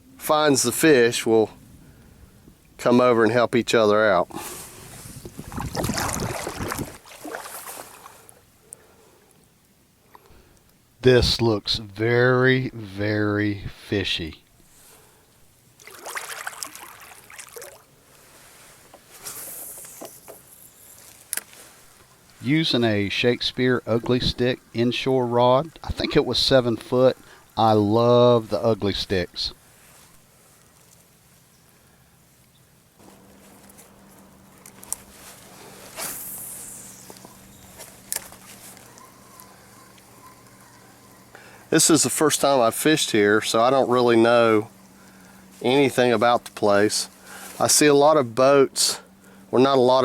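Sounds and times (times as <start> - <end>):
water splashing around kayak: 4.6 - 8.4, 15.8 - 17.9
fishing line zipping off spool: 19.2 - 21.0, 35.4 - 39.7.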